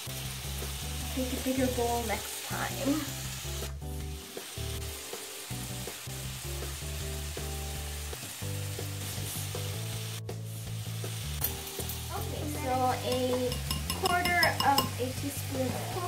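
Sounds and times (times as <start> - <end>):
background music: 0.0 - 16.0
chicken sizzling in a frying pan: 0.0 - 16.0
whisk beating in a glass bowl: 13.1 - 14.9.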